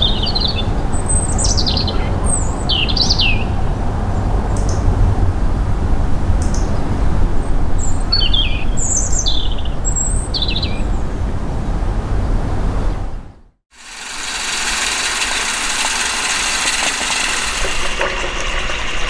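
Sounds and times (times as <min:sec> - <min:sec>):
small birds chirping: 0:00.0 - 0:03.7, 0:07.8 - 0:11.1.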